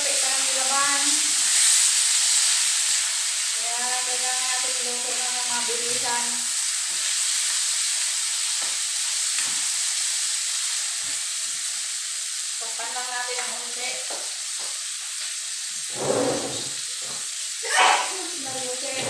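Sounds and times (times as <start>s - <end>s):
chicken frying in hot oil: 0.0s - 19.0s
ladle scraping a wok: 15.8s - 16.9s.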